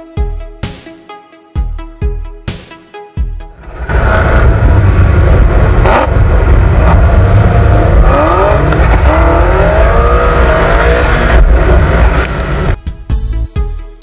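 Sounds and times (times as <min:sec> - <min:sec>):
car engine accelerating hard: 0:03.6 - 0:12.8.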